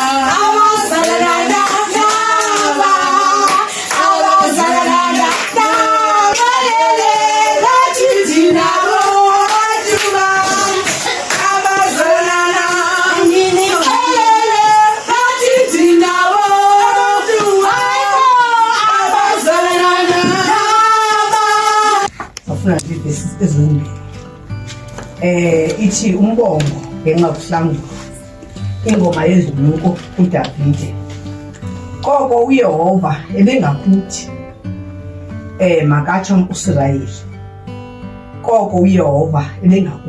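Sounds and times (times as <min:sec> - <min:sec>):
women and children singing: 0:00.0 - 0:22.1
hand claps: 0:00.9 - 0:07.2, 0:08.5 - 0:14.8.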